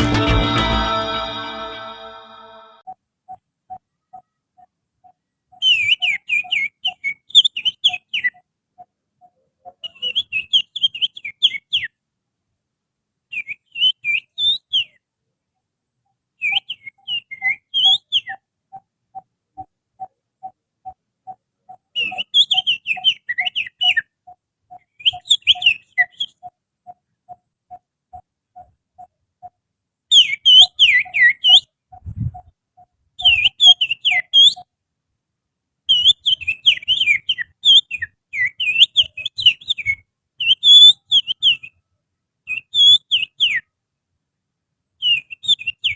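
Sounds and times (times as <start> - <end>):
low repeating note: 0.0 - 2.8
finger whistling birdsong: 30.1 - 31.7, 35.9 - 41.8.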